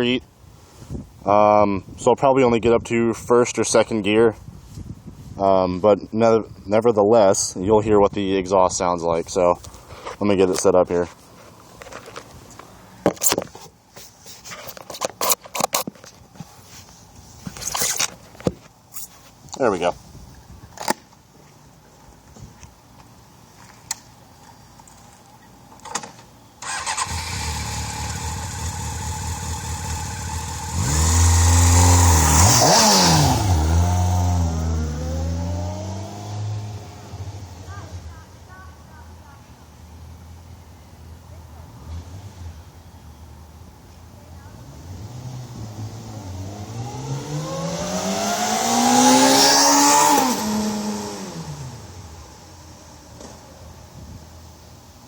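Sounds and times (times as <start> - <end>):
motorcycle engine starting and revving: 26.6 - 37.7, 44.6 - 53.1.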